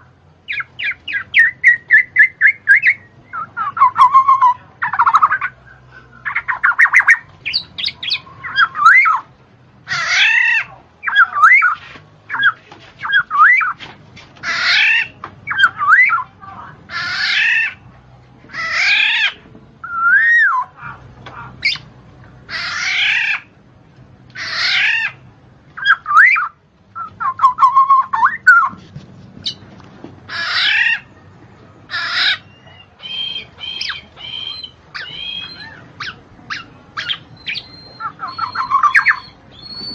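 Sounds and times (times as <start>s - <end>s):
bird squawking and chirping: 0.4s - 13.8s, 14.4s - 17.9s, 18.5s - 21.9s, 22.5s - 23.6s, 24.4s - 25.2s, 25.8s - 28.8s, 29.4s - 29.6s, 30.3s - 31.2s, 31.9s - 39.9s.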